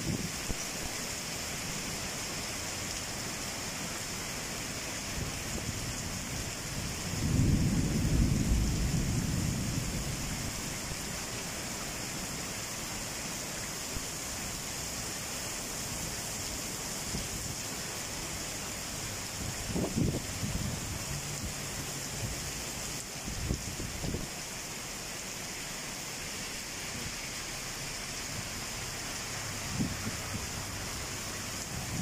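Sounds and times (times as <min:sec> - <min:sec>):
heavy rain on paving: 0:00.0 - 0:32.0
low rumble of thunder: 0:06.9 - 0:10.6.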